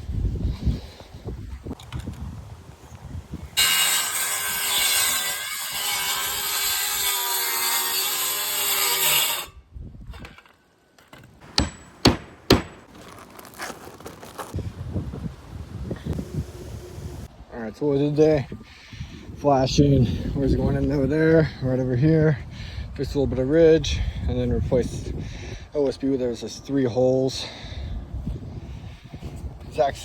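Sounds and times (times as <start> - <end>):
power saw cutting wood: 3.6 - 9.5
sharp knocks: 11.4 - 12.9.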